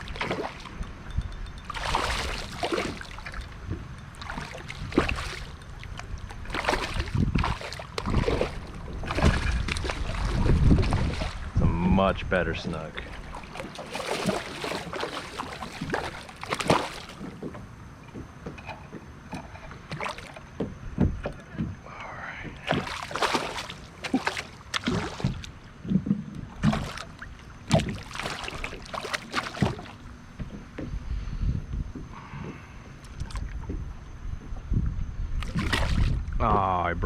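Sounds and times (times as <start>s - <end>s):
water splashes: 0.0s - 17.6s, 19.8s - 20.5s, 22.5s - 30.2s, 35.4s - 36.8s.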